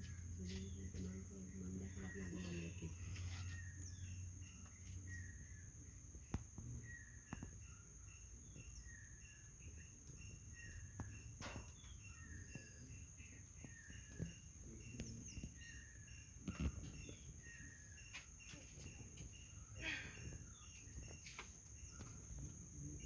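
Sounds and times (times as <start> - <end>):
bird chirping: 0.0 - 23.0
insect drone: 0.0 - 23.0.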